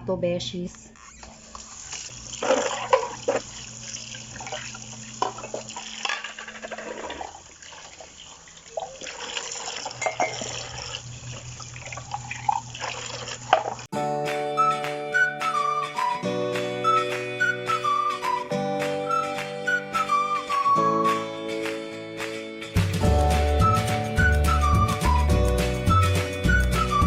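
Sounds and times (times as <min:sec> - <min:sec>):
tap water running: 0:01.2 - 0:13.9
dishes clinking: 0:09.9 - 0:10.7.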